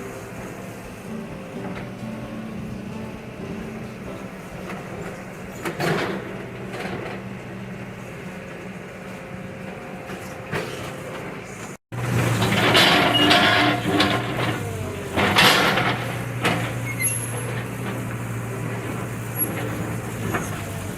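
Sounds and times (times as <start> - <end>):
excavator diesel engine running: 0.0 - 20.9
steel debris scraping and clanking: 0.0 - 20.9.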